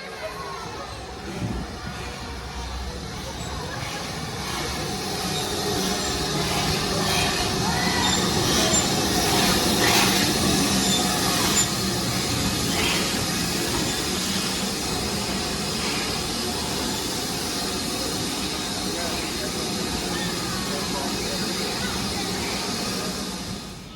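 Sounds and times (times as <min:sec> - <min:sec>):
train rolling rumble: 0:00.0 - 0:23.9
wheels squealing: 0:00.4 - 0:17.8.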